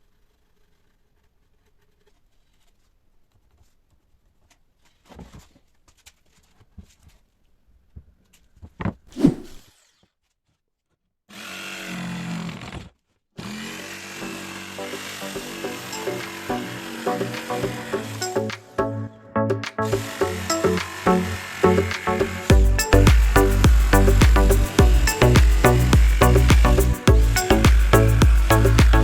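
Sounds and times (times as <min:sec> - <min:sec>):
power tool running: 0:13.4 - 0:18.8, 0:19.9 - 0:29.0.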